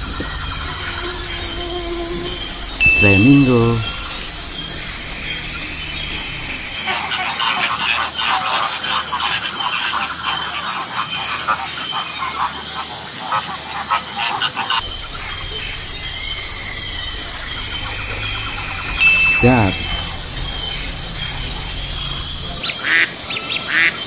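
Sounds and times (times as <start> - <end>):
low background hum: 0.0 - 7.0, 14.8 - 22.6.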